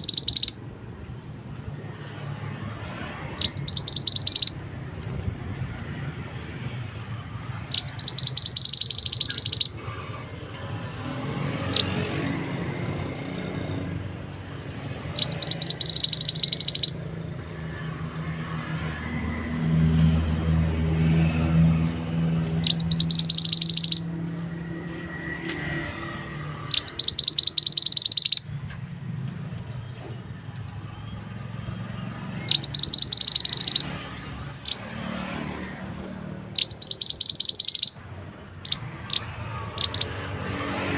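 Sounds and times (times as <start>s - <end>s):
bird singing rolling trills: 0.0s - 0.7s, 3.3s - 4.7s, 7.4s - 10.0s, 11.6s - 12.0s, 15.0s - 17.0s, 22.4s - 24.9s, 26.7s - 28.6s, 31.0s - 34.9s, 36.4s - 40.3s.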